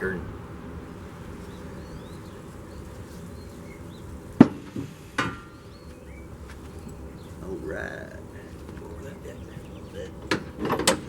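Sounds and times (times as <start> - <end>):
outdoor background noise: 0.0 - 11.0
sharp metallic knocks: 4.4 - 5.7.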